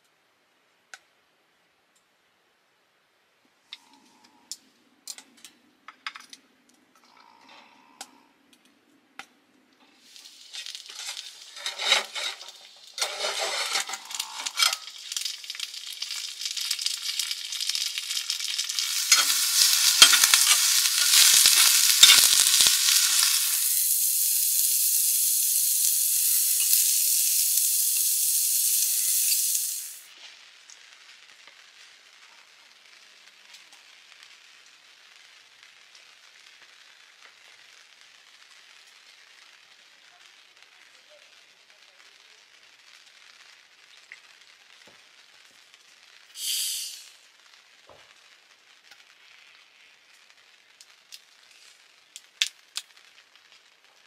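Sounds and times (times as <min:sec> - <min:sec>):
peppers sizzling in hot oil: 0:09.8 - 0:54.0
metal tongs clicking on skillet: 0:17.1 - 0:23.6.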